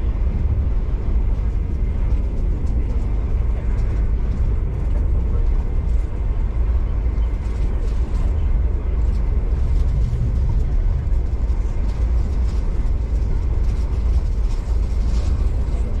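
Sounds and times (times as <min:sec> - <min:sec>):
train wheels rumbling: 0:00.0 - 0:16.0.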